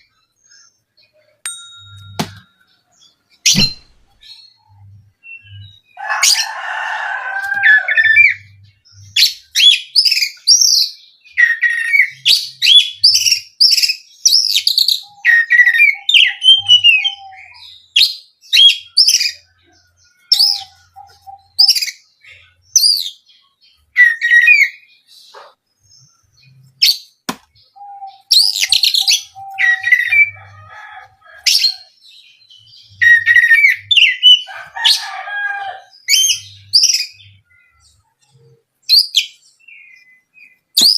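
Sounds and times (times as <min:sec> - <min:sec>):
bird singing whistles and chirps: 0:02.0 - 0:04.6, 0:07.8 - 0:23.3, 0:23.9 - 0:25.1, 0:26.0 - 0:30.4, 0:31.5 - 0:34.5, 0:36.0 - 0:40.9.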